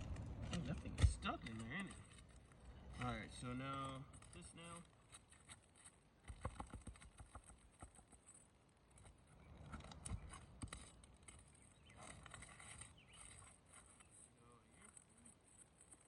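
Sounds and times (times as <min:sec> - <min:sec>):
tool clicking and scraping on nail: 0:09.0 - 0:14.1.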